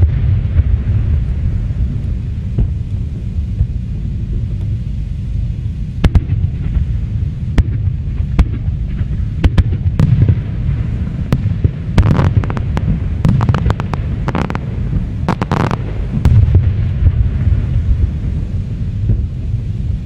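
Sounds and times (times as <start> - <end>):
fireworks rumble: 0.0 - 20.0
fireworks cracks and crackling: 6.0 - 7.0, 7.6 - 20.0.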